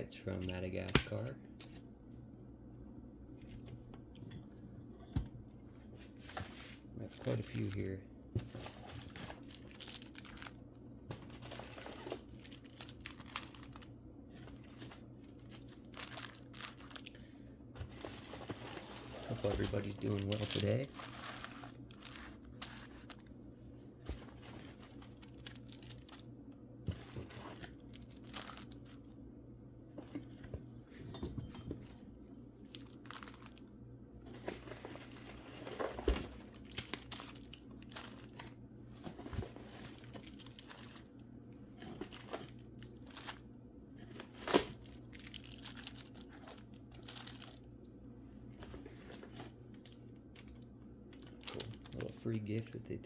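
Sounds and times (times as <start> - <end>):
packing material crinkling and tearing: 6.1 - 23.4, 24.0 - 29.1, 32.6 - 33.7, 34.3 - 47.7, 48.5 - 52.8.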